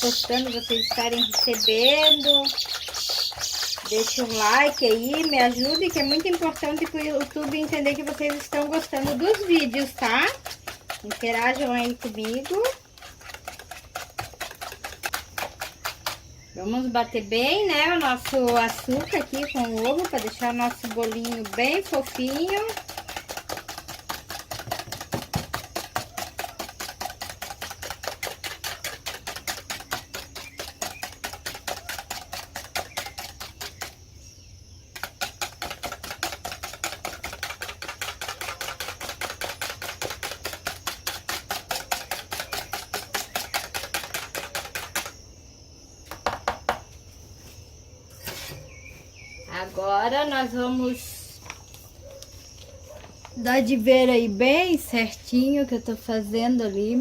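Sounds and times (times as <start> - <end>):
utensil tapping against bowl: 0.0 - 16.2, 17.6 - 34.0, 35.0 - 45.2.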